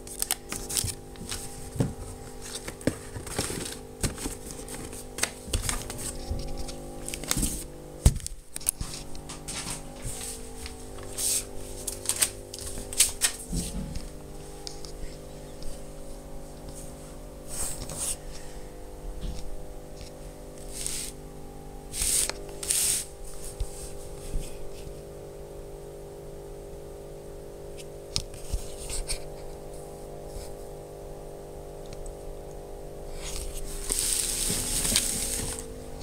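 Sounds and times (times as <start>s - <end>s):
rustling handling noise: 0.0s - 18.5s, 20.0s - 21.2s, 33.1s - 36.0s
hum of sustained tones: 0.0s - 36.0s.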